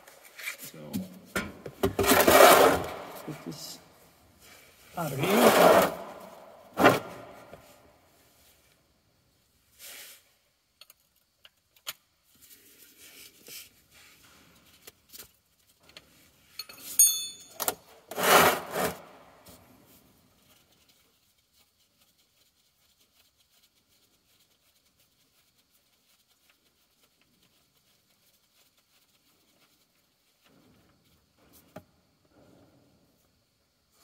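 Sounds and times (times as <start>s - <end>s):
hand tools scraping on metal: 1.9s - 3.3s, 5.0s - 7.2s, 18.1s - 19.1s
metallic clatter with ringing: 16.6s - 17.7s.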